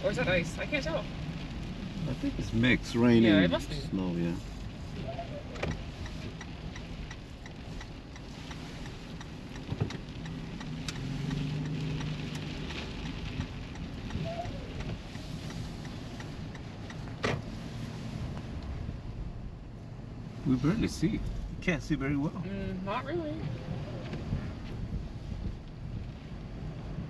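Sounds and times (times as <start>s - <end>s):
car road and engine noise: 0.0s - 27.0s
sleet ticking on windshield: 5.5s - 17.2s.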